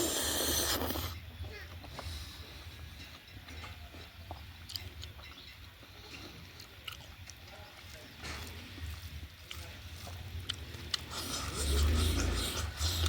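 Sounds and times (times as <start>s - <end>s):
wet mouth clicks: 0.0s - 1.2s, 10.4s - 13.0s
person chewing food: 4.6s - 7.5s, 8.4s - 13.0s.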